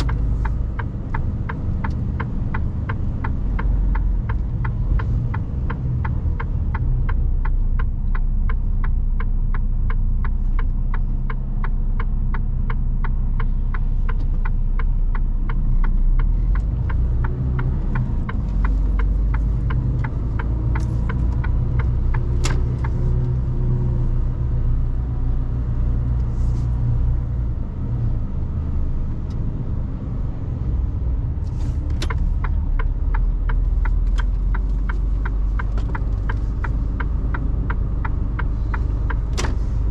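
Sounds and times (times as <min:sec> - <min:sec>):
rapid regular ticking: 0:00.0 - 0:23.2, 0:32.0 - 0:39.9
truck engine rumbling: 0:00.0 - 0:39.9.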